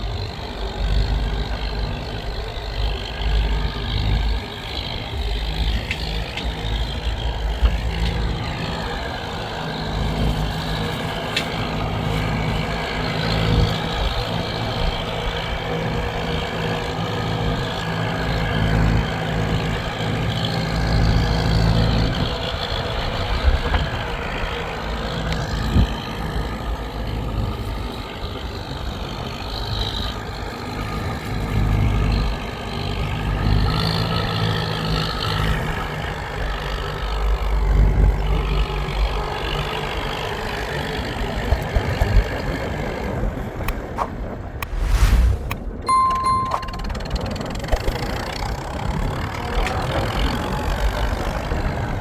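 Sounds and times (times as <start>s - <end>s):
vehicle engine humming: 44.5s - 47.4s.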